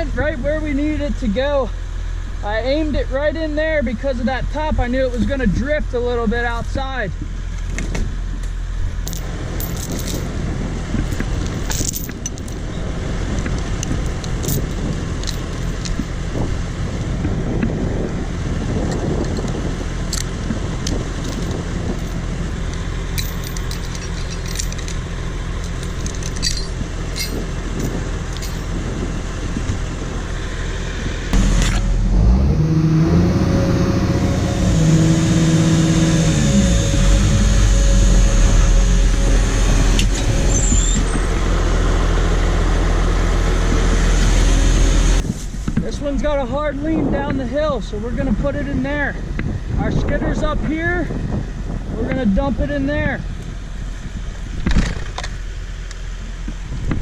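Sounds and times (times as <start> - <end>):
diesel engine running: 0.0 - 57.0
light metallic clinking: 9.0 - 10.3, 11.0 - 12.7, 13.8 - 16.1, 18.9 - 25.0, 25.6 - 28.7.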